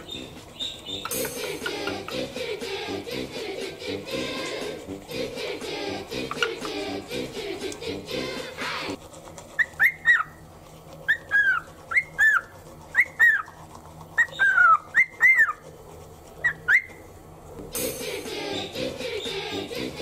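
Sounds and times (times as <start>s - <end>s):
cockatiel whistling: 0.0s - 1.9s, 9.6s - 10.4s, 14.2s - 15.6s, 16.4s - 17.0s.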